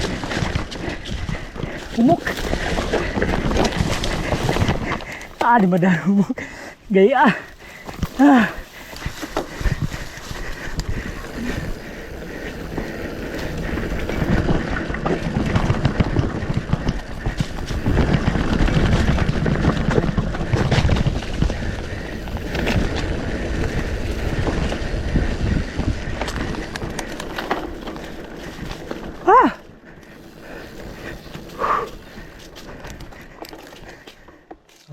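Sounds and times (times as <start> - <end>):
bike rattling over dirt trail: 0.0 - 34.9.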